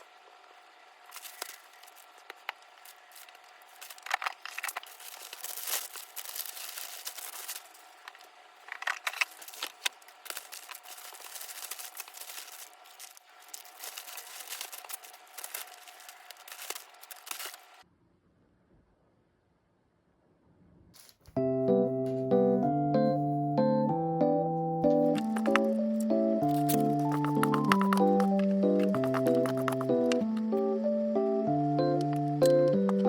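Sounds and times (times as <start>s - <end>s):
packaging crinkling and rustling: 1.0s - 17.8s, 25.0s - 30.5s
packaging tearing: 1.0s - 17.8s, 26.4s - 29.8s.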